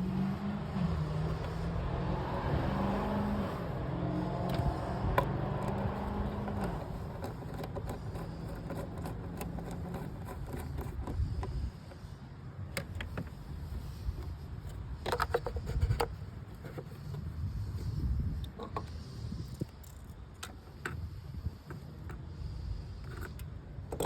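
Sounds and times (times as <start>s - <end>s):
car engine humming: 0.0s - 15.0s
sharp clicks and rattles: 4.2s - 12.1s.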